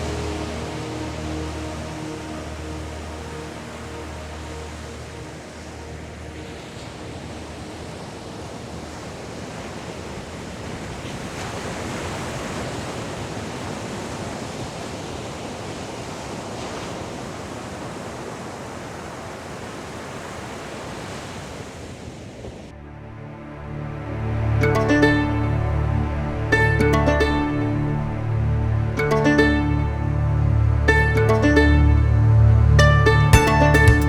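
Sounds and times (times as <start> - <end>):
music: 0.0 - 7.3, 22.8 - 34.0
ocean surf washing on beach: 0.0 - 22.9.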